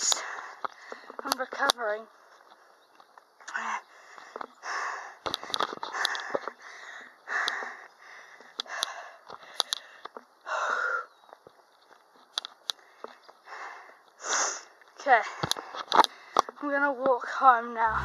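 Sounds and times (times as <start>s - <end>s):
person breathing hard: 3.6s - 11.1s, 12.8s - 14.7s.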